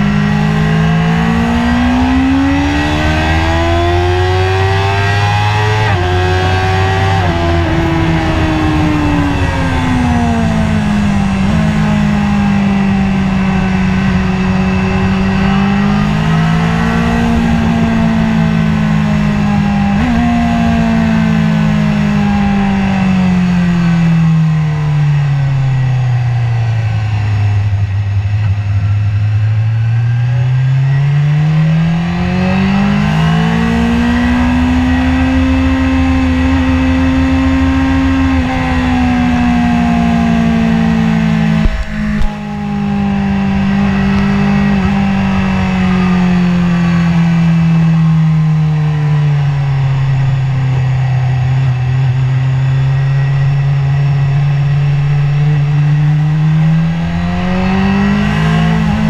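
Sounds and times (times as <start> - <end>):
motorcycle engine at speed: 0.0 - 59.0
wind rush: 5.4 - 23.3, 35.5 - 48.0.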